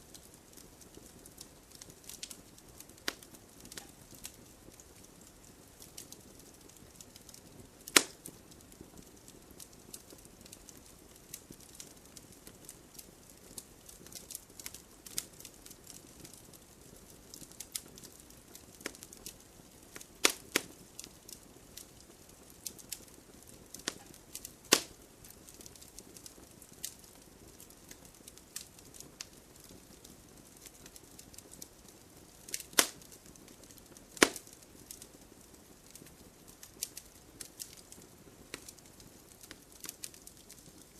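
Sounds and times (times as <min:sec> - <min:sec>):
wood fire crackling: 0:00.0 - 0:40.9
loud sharp fire pops: 0:07.9 - 0:08.4, 0:20.2 - 0:20.7, 0:23.7 - 0:25.0, 0:32.5 - 0:33.1, 0:33.8 - 0:35.0.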